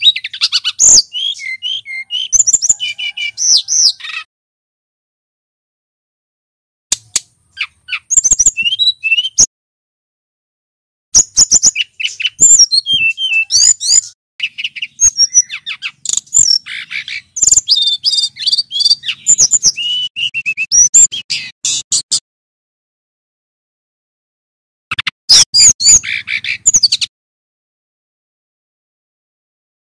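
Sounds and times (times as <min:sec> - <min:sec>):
bird singing whistled notes: 0:00.0 - 0:04.3, 0:07.1 - 0:09.5, 0:11.2 - 0:22.2, 0:25.3 - 0:27.1.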